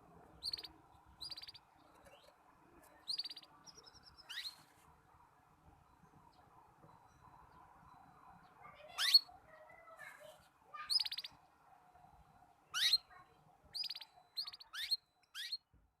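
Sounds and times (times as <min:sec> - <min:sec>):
canary warbling and chirping: 0:00.4 - 0:02.3, 0:03.0 - 0:04.6, 0:08.4 - 0:09.7, 0:10.8 - 0:11.4, 0:12.7 - 0:15.6.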